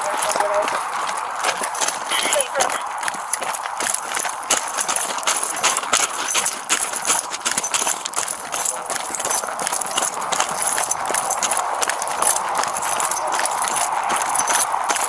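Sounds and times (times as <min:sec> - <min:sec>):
quick footsteps: 0:00.0 - 0:15.0.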